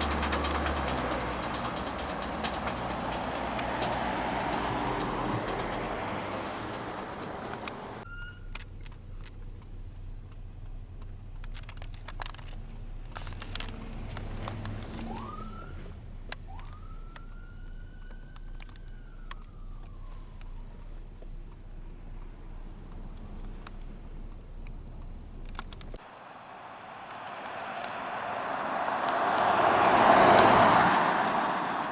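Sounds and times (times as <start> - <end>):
passing traffic rush: 0.0 - 8.1, 11.7 - 31.9
faint emergency siren wailing: 0.0 - 8.6, 13.5 - 22.0, 26.1 - 31.9.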